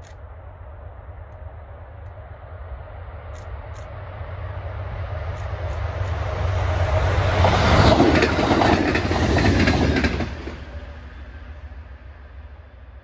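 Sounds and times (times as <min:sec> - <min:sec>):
passenger train passing: 0:00.0 - 0:13.0
wheels clattering over rail joints: 0:07.4 - 0:10.6.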